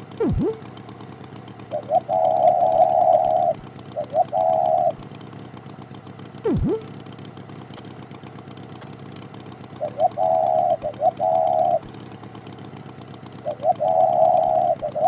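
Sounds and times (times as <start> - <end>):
cartoon tractor engine idling: 0.0 - 15.0
short pitched beeps and tones: 0.2 - 0.6.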